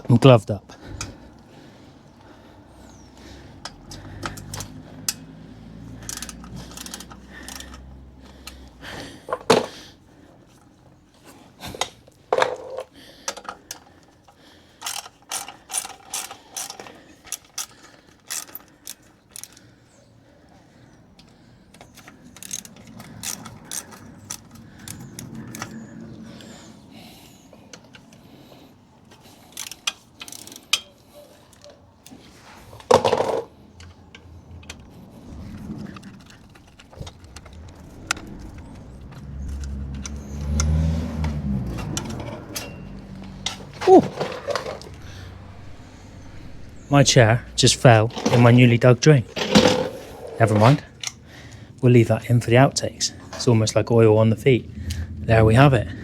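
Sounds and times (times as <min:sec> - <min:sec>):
tools knocking and clinking: 0:03.6 - 0:05.3, 0:12.3 - 0:13.9, 0:32.8 - 0:34.9, 0:39.1 - 0:47.2, 0:49.3 - 0:51.2
socket ratchet clicking: 0:03.6 - 0:08.8, 0:14.8 - 0:19.6, 0:21.8 - 0:25.7
low hum: 0:34.2 - 0:50.4, 0:53.8 - 0:56.0.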